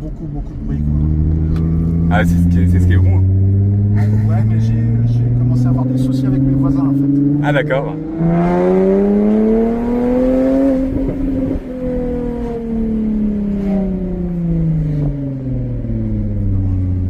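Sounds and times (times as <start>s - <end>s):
car engine revving: 0.0s - 17.0s
exhaust crackles: 0.0s - 17.0s.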